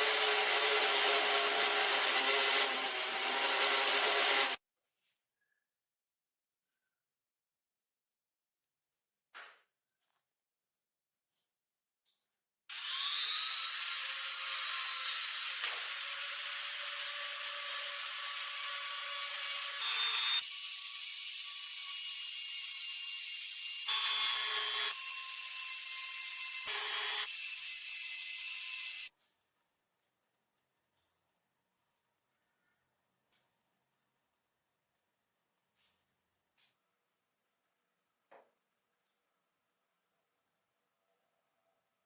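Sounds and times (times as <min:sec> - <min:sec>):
power tool motor whine: 0:12.7 - 0:20.5, 0:26.6 - 0:27.3.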